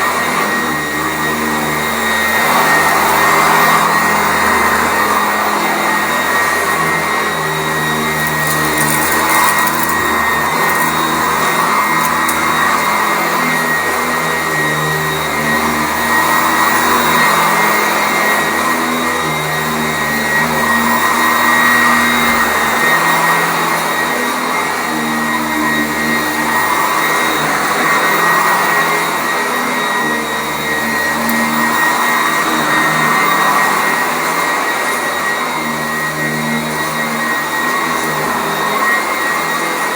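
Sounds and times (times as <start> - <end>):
upright vacuum running on carpet: 0.0 - 39.9.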